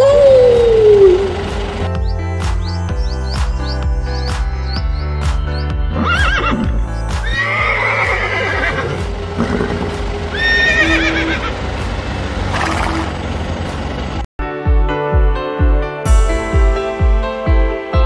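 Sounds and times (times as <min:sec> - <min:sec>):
background music: 0:00.0 - 0:13.2, 0:14.4 - 0:18.0
horse whinnying: 0:05.9 - 0:11.5.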